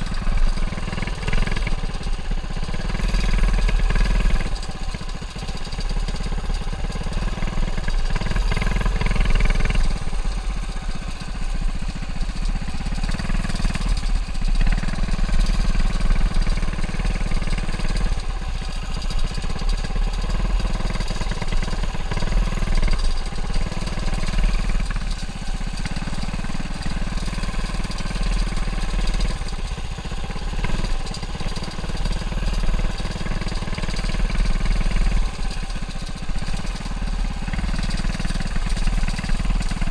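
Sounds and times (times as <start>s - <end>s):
mini bike engine revving: 0.0s - 4.7s, 5.5s - 10.2s, 12.6s - 39.9s.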